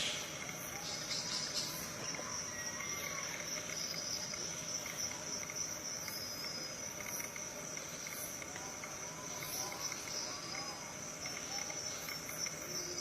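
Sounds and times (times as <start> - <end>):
insects trilling: 0.0 - 13.0
faint regular ticking: 3.2 - 13.0.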